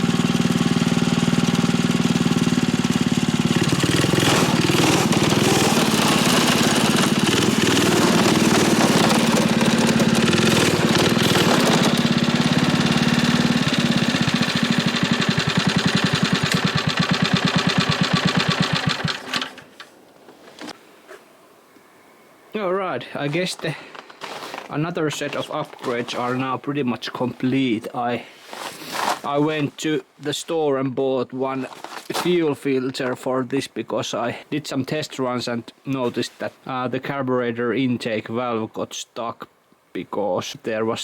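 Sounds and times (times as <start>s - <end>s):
small engine running: 0.0s - 19.6s.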